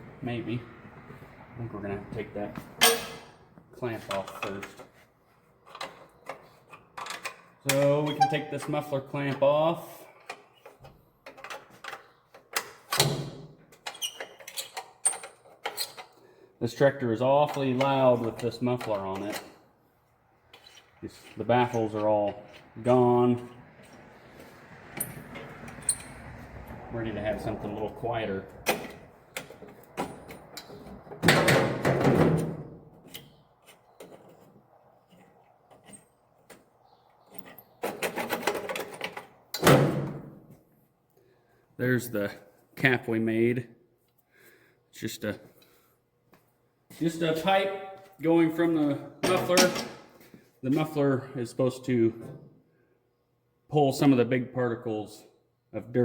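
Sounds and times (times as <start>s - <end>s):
hand tools clinking on metal: 2.8s - 3.3s.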